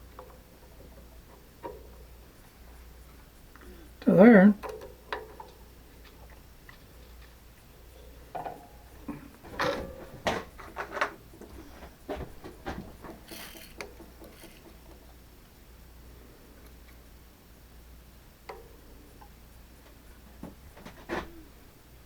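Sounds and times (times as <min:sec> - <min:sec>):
low steady hum: 0:00.0 - 0:22.0
metal tools clicking and knocking: 0:12.2 - 0:14.9.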